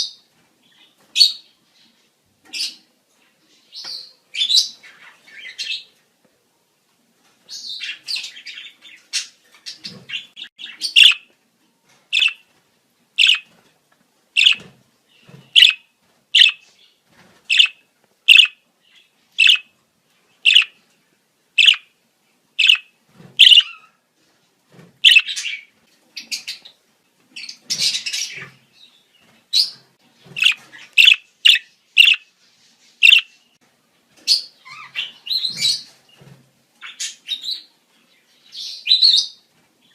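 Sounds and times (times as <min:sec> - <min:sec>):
budgerigars chirping: 0:07.6 - 0:11.3, 0:12.1 - 0:12.4, 0:13.2 - 0:13.5, 0:14.4 - 0:14.7, 0:15.5 - 0:15.8, 0:16.4 - 0:16.7, 0:17.5 - 0:19.7, 0:20.4 - 0:20.8, 0:21.6 - 0:21.9, 0:22.6 - 0:23.9, 0:25.0 - 0:26.7, 0:30.4 - 0:32.3, 0:33.0 - 0:33.4
budgerigars warbling: 0:09.2 - 0:11.3, 0:12.2 - 0:12.4, 0:13.2 - 0:13.5, 0:14.4 - 0:14.6, 0:15.6 - 0:15.8, 0:16.4 - 0:16.6, 0:17.5 - 0:18.6, 0:19.4 - 0:19.7, 0:20.5 - 0:20.8, 0:21.6 - 0:21.8, 0:22.6 - 0:23.9, 0:25.0 - 0:25.6, 0:30.4 - 0:32.2, 0:33.0 - 0:33.3.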